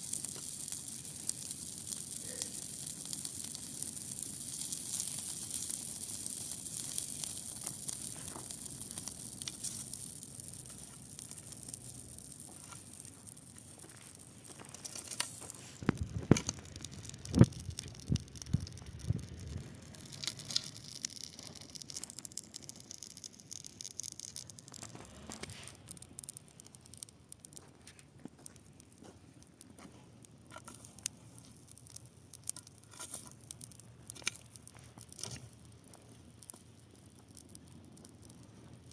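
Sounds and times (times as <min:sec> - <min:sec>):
dry grass fire crackling: 0:00.0 - 0:38.9.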